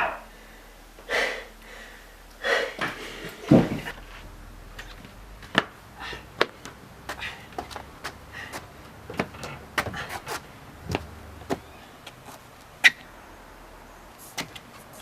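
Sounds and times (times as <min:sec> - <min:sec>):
footsteps in a house: 0:02.8 - 0:12.5.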